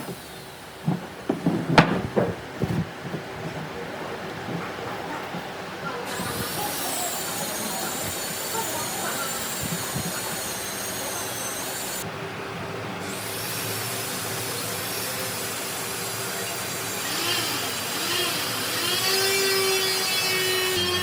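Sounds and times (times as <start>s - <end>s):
power tool motor whine: 16.7s - 21.0s.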